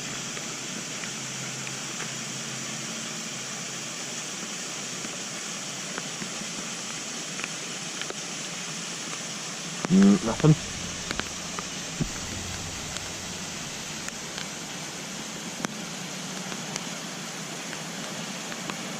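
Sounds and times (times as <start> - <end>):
rain hissing: 9.9 - 15.5.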